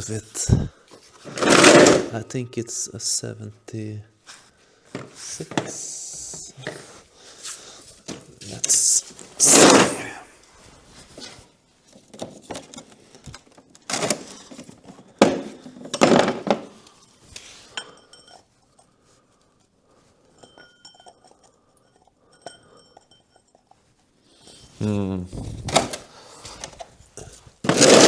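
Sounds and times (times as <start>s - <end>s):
metal wrench cups clinking: 17.7s - 19.0s, 20.3s - 24.6s.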